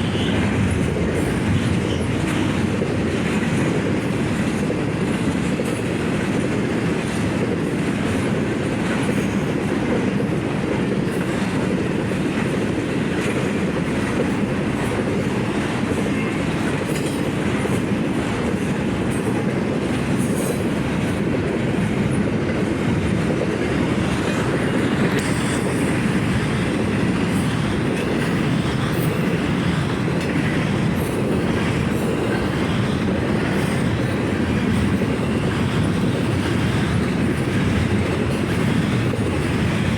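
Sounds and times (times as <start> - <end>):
steel wheels rumbling on rail: 0.0 - 39.9.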